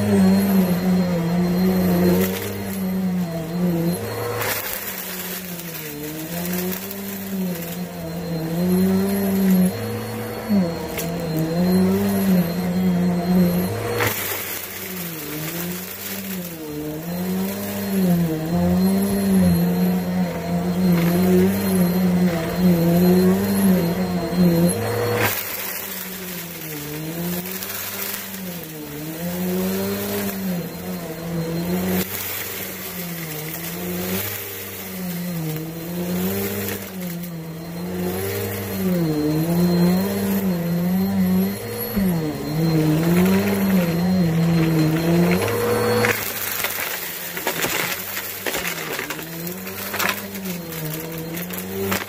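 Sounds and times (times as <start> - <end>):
vacuum cleaner running: 0.0 - 52.0.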